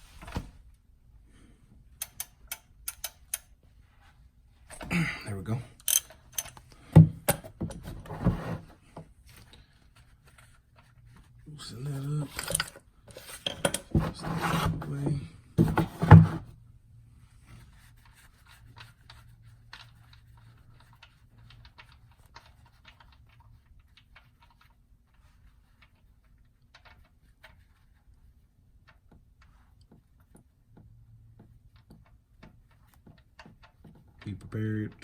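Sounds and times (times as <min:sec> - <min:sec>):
faint clicks and taps: 0:17.6 - 0:35.0.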